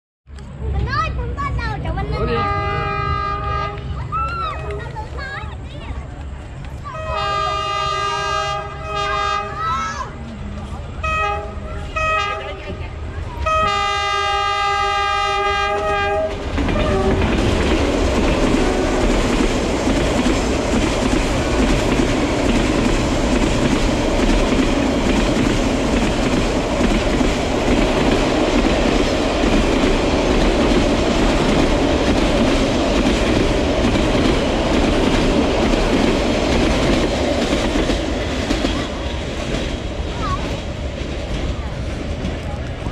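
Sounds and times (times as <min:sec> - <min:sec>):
train wheels rumbling on rails: 0:00.3 - 0:42.9
train horn blast: 0:02.2 - 0:04.0, 0:06.9 - 0:09.7, 0:11.0 - 0:17.5, 0:18.5 - 0:19.3.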